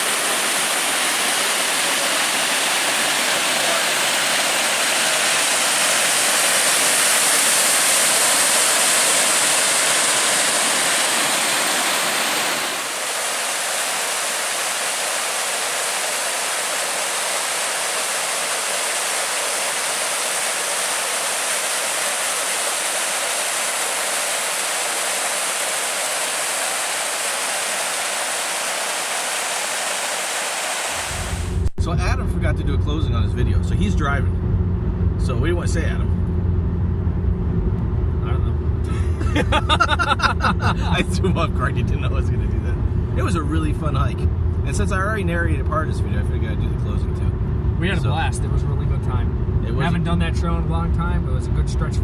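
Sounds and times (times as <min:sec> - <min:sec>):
small waterfall rushing: 0:00.0 - 0:31.7.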